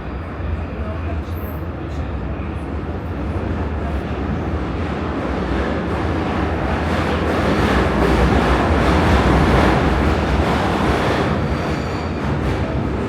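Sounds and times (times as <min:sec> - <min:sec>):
metro train wheels rumbling: 0:00.0 - 0:13.0.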